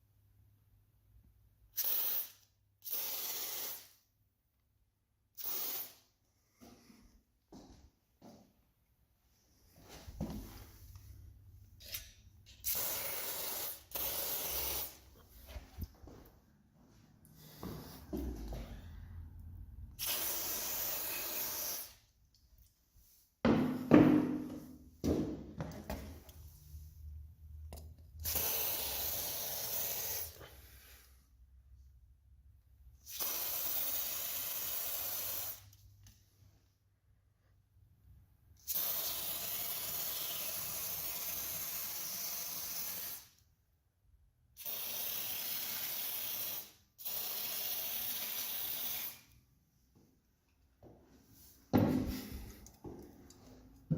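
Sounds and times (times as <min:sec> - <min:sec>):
aerosol can spraying: 0:01.7 - 0:04.0, 0:05.4 - 0:06.1, 0:11.8 - 0:15.2, 0:20.0 - 0:22.0, 0:28.2 - 0:30.4, 0:33.0 - 0:35.8, 0:38.6 - 0:43.4, 0:44.6 - 0:49.3.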